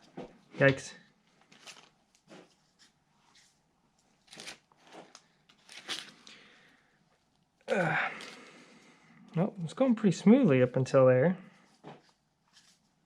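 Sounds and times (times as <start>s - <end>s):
hands scraping and rustling: 11.6s - 13.0s.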